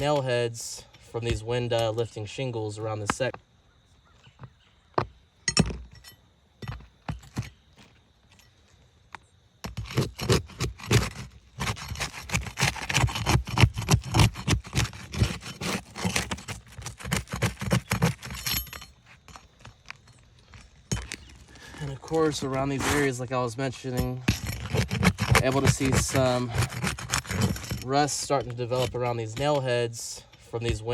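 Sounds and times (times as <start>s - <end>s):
tool scraping roof shingles: 9.6s - 30.9s
tool knocking on shingles: 23.9s - 29.6s.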